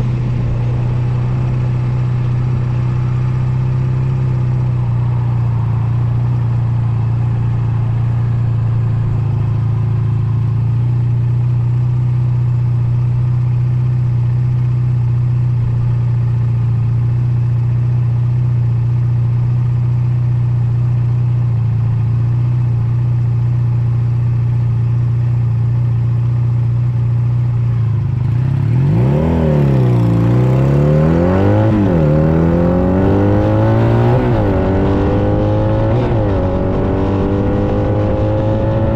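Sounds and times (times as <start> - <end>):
motorcycle engine revving: 0.0 - 20.8, 24.0 - 38.9
motorcycle engine idling: 0.0 - 28.8.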